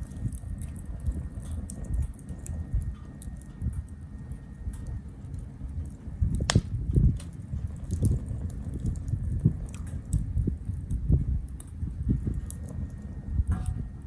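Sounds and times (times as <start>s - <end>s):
low rumble of flame: 0.0s - 14.0s
wood fire crackling: 0.0s - 14.0s
sharp wood pop: 6.5s - 6.7s.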